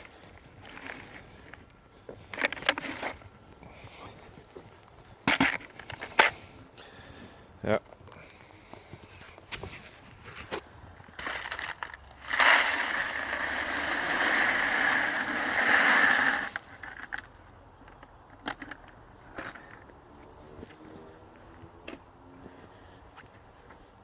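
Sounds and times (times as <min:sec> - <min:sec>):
stones clicking as they settle: 0:00.0 - 0:06.9, 0:10.5 - 0:19.0
stones pouring: 0:11.2 - 0:17.0.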